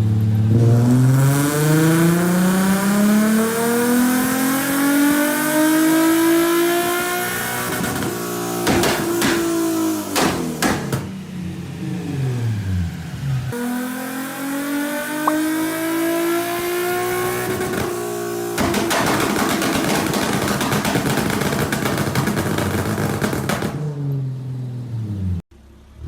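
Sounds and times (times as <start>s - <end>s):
exhaust pops and crackles: 18.6s - 23.8s.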